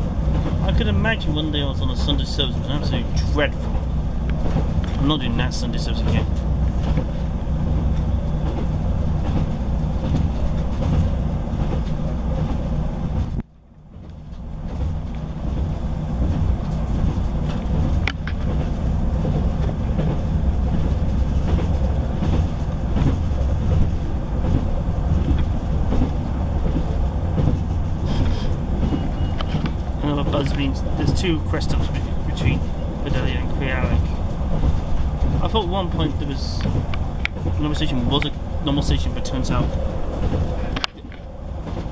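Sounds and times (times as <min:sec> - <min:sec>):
train engine rumble: 0:00.0 - 0:41.9
wheels on rails: 0:00.0 - 0:41.9
sharp click in train cabin: 0:16.2 - 0:20.2, 0:25.2 - 0:30.6, 0:39.6 - 0:41.9.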